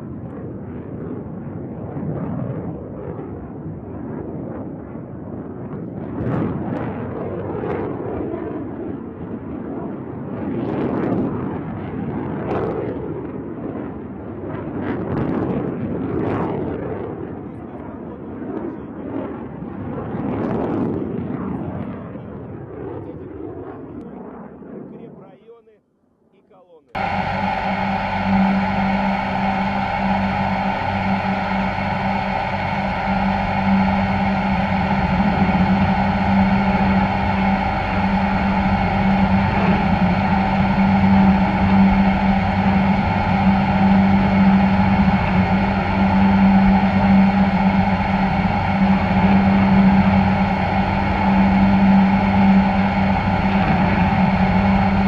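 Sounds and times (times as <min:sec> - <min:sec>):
mechanical drone: 0:00.0 - 0:03.7, 0:27.0 - 0:55.0
rocket motor rumble: 0:27.0 - 0:55.0.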